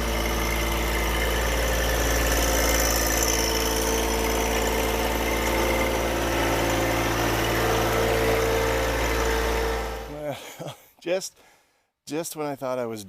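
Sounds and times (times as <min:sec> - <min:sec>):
engine idling: 0:00.0 - 0:10.3.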